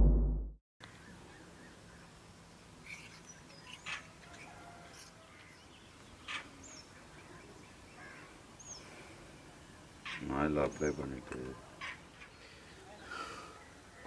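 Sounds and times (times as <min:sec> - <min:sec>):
faint bird chirps: 0:02.8 - 0:11.1.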